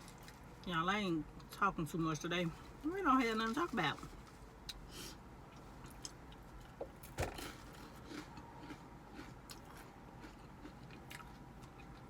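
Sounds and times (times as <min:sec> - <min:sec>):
soft chewing: 0:07.4 - 0:12.0.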